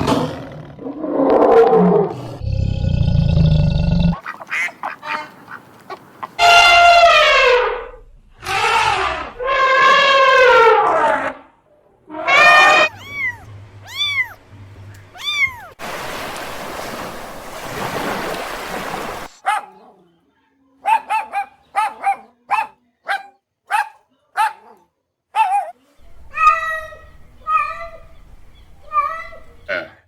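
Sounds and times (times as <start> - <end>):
animal calls: 4.1 - 11.4, 12.2 - 14.4.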